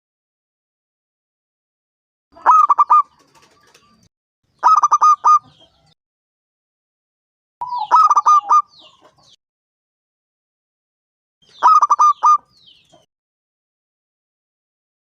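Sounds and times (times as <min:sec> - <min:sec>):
dove staccato cooing: 0:02.4 - 0:03.8, 0:04.6 - 0:05.9, 0:07.6 - 0:09.2, 0:11.6 - 0:12.4.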